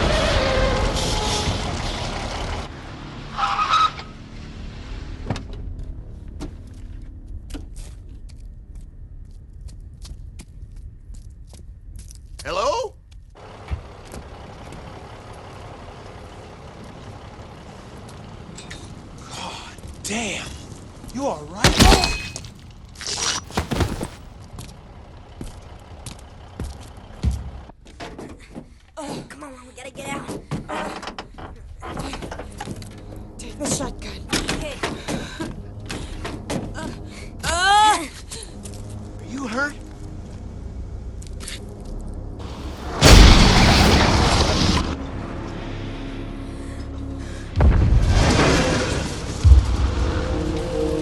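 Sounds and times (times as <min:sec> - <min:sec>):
scraping and rustling: 0:21.7 - 0:24.2
vehicle sliding: 0:21.7 - 0:24.2, 0:42.4 - 0:44.9
low thuds: 0:23.5 - 0:24.2.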